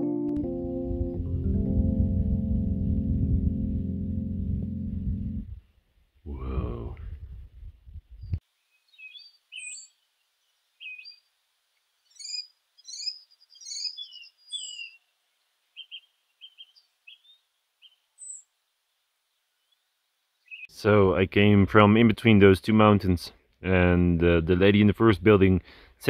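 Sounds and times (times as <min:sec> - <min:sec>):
low rumble: 0:00.4 - 0:05.7, 0:06.3 - 0:08.4
small birds chirping: 0:08.1 - 0:20.8.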